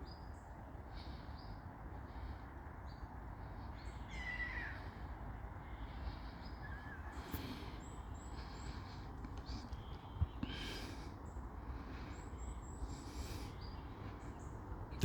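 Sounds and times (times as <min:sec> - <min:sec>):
birds chirping: 0:00.0 - 0:15.0
wavering bird call: 0:04.1 - 0:05.0.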